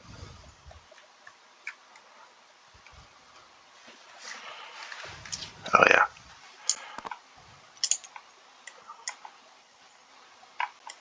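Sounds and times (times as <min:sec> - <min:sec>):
computer mouse clicks: 0:07.8 - 0:09.4, 0:10.6 - 0:11.0.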